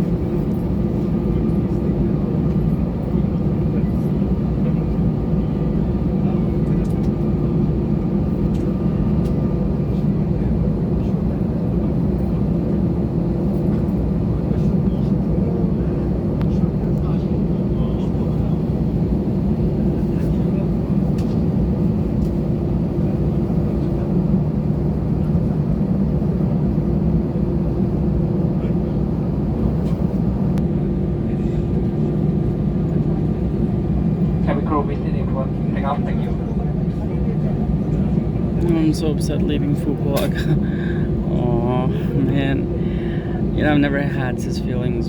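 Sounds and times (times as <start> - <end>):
aircraft cabin engine drone: 0.0 - 45.0
faint steady hum: 38.5 - 45.0.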